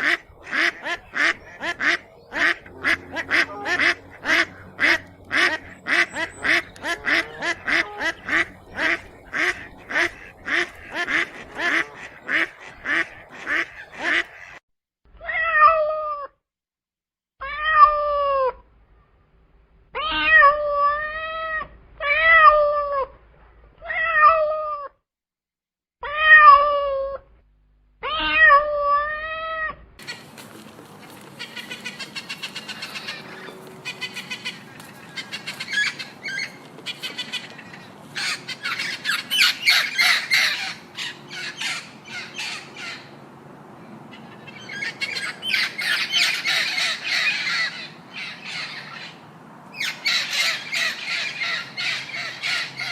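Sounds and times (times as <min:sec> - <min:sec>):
ducks quacking: 0:00.0 - 0:14.6, 0:30.0 - 0:43.1
mix of animal sounds: 0:00.0 - 0:14.6, 0:28.0 - 0:52.9
cat meowing: 0:20.0 - 0:23.1, 0:23.8 - 0:24.9, 0:26.0 - 0:27.2, 0:28.0 - 0:29.8.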